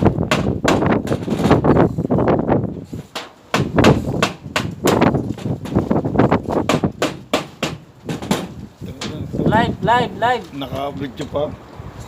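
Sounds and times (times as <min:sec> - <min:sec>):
hammer blows: 0:03.0 - 0:08.6.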